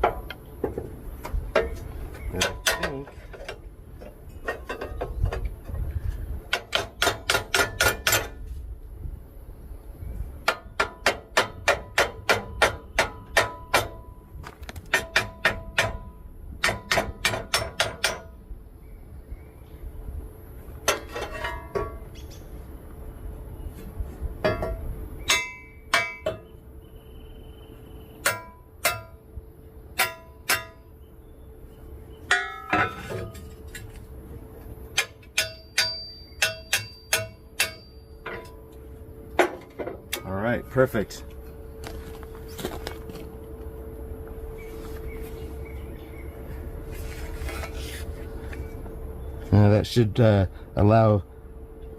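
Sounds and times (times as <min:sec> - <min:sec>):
hammer striking metal: 0:06.5 - 0:08.4, 0:10.4 - 0:14.1, 0:14.9 - 0:18.4, 0:24.4 - 0:26.5, 0:28.2 - 0:29.2, 0:30.0 - 0:30.9, 0:32.3 - 0:33.4, 0:35.0 - 0:38.6.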